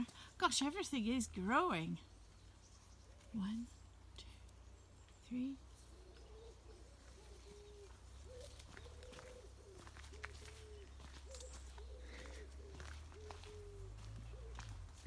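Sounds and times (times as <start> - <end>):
pigeon cooing: 6.0 - 15.0.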